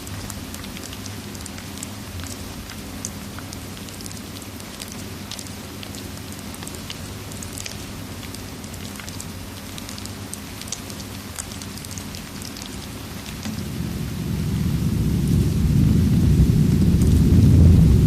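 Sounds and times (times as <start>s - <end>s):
steady rain: 0.0s - 18.0s
thunder rumbling: 13.1s - 18.0s.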